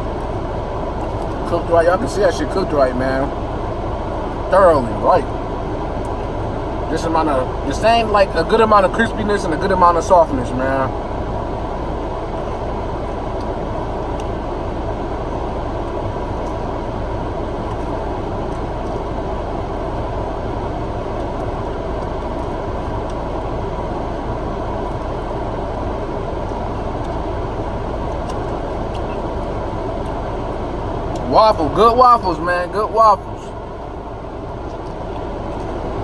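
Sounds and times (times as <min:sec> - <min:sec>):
car cabin hum and rush: 0:00.0 - 0:36.0.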